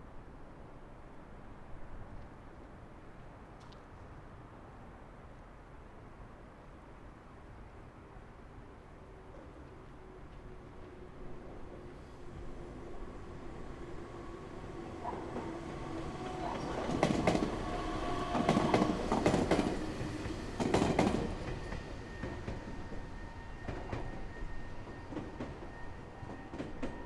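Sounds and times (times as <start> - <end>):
train whine: 9.0 - 27.0
train wheels clattering over rail joints: 11.4 - 27.0.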